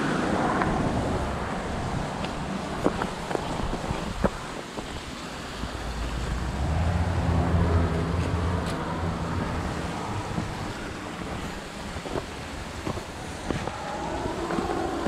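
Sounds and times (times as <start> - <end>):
wind noise on microphone: 0.0 - 15.0
passing engine hum: 5.2 - 15.0.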